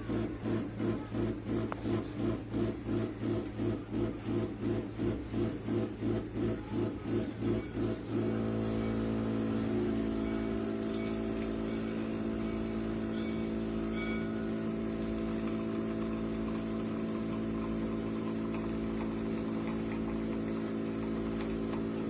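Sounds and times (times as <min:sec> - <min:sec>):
espresso machine pump humming: 0:00.0 - 0:22.0.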